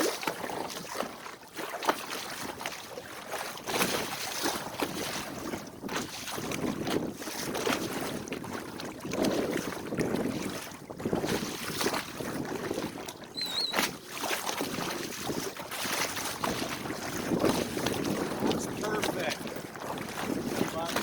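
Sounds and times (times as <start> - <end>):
water splashing along hull: 0.0 - 21.0
wind buffeting microphone: 4.7 - 21.0
wavering high chirp: 13.4 - 13.8.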